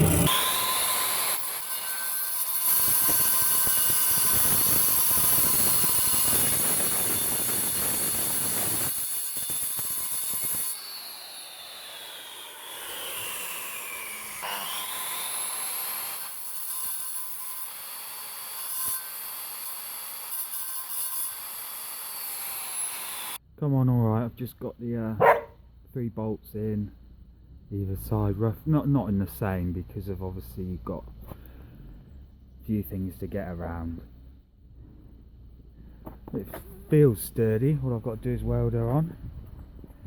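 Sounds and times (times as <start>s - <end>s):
angle grinder cutting steel: 0.0s - 23.4s.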